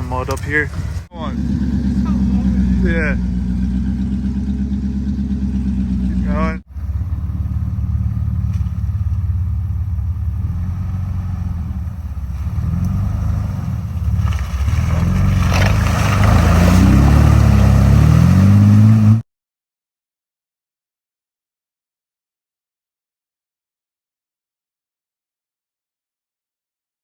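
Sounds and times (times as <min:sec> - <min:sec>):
car engine revving: 0:00.0 - 0:19.2.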